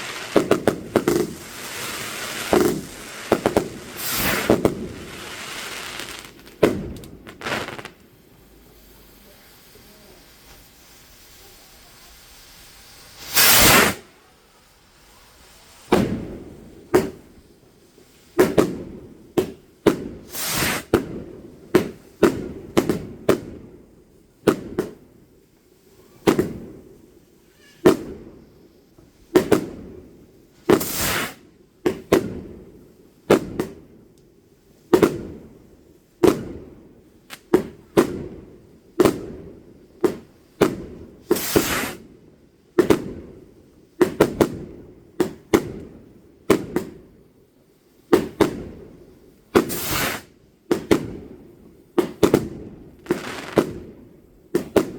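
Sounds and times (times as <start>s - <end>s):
fireworks bangs with echo: 0.0s - 8.0s, 13.2s - 14.0s, 15.9s - 17.3s, 18.3s - 23.7s, 24.4s - 25.1s, 26.2s - 26.9s, 27.8s - 28.4s, 29.3s - 30.0s, 30.6s - 32.6s, 33.3s - 33.9s, 34.9s - 35.5s, 36.2s - 36.8s, 37.4s - 42.1s, 42.8s - 43.4s, 44.0s - 47.1s, 48.1s - 51.4s, 52.0s - 54.9s
crackling fireworks burst: 0.0s - 25.3s, 26.0s - 34.1s, 34.7s - 47.2s, 48.1s - 54.9s.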